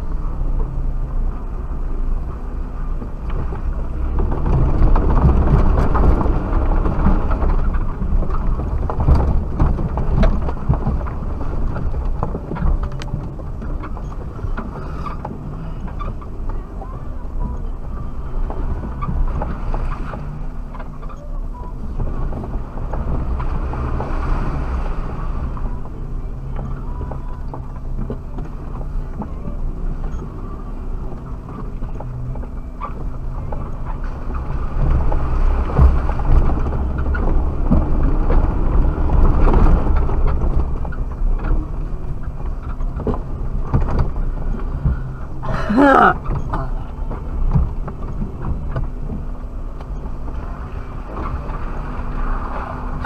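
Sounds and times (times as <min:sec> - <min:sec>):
car engine running off-road: 0:00.0 - 0:53.0
knocks and rattles: 0:03.0 - 0:16.7, 0:25.4 - 0:50.4.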